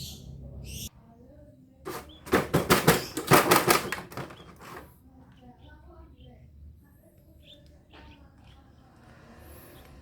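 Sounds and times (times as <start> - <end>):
plastic packaging clicks and crackles: 1.9 - 4.8.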